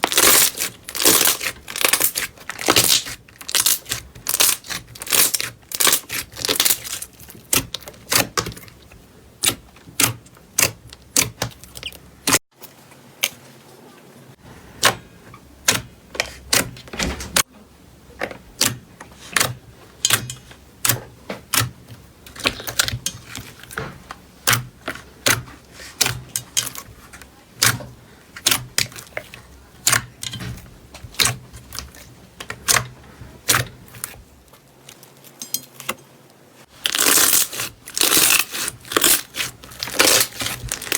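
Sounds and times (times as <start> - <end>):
crunchy slime crackling: 0.0 - 12.4, 36.7 - 40.9.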